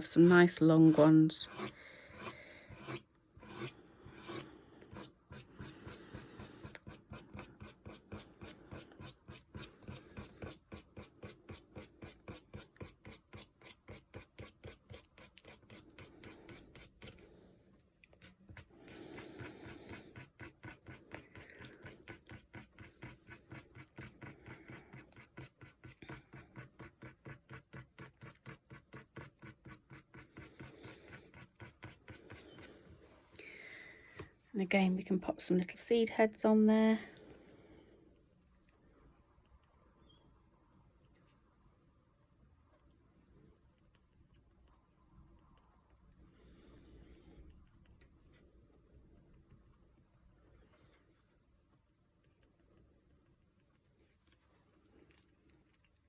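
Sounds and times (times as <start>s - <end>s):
pen scratching on paper: 0.0s - 17.3s, 18.2s - 32.8s.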